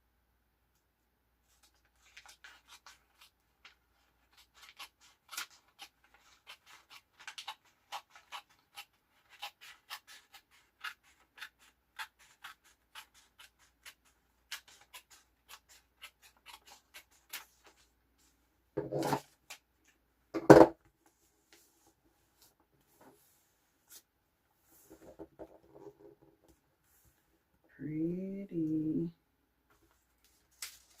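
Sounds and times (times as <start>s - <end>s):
scissors snipping paper: 1.9s - 17.9s.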